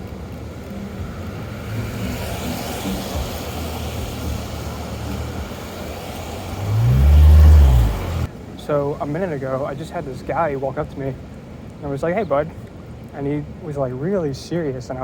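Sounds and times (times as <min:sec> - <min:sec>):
traffic rumble: 0:00.0 - 0:15.0
vehicle passing close: 0:00.2 - 0:08.3.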